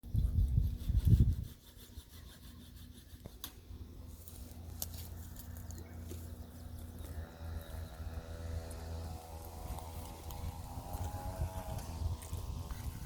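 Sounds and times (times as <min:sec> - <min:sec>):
wind on microphone: 0:00.0 - 0:02.1, 0:07.1 - 0:13.0
rubbing: 0:00.1 - 0:03.5.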